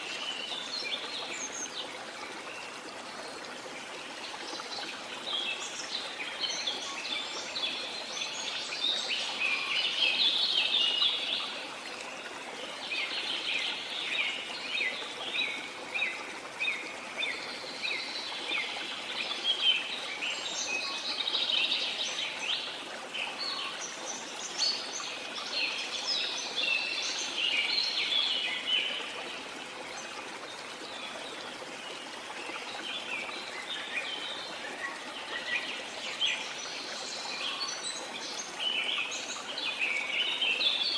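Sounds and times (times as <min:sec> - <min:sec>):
flowing water rushing: 0:00.0 - 0:40.9.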